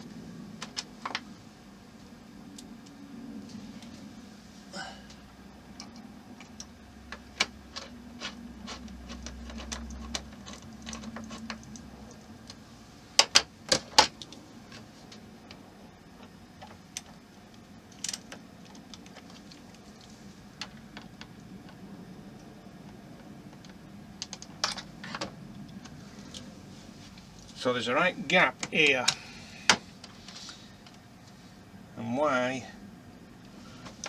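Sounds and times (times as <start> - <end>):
steady low hum: 0.0 - 34.0
small plastic and metal parts clicking: 5.8 - 12.6.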